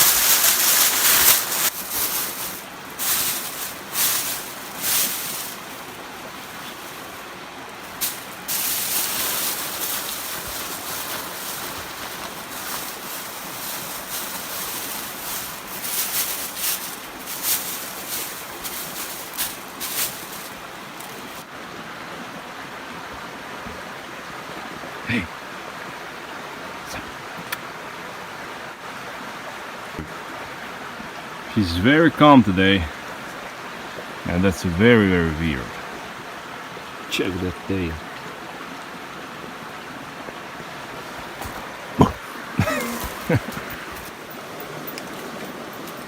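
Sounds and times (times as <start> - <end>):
emergency blanket crinkling: 0.0 - 21.5, 40.9 - 46.0.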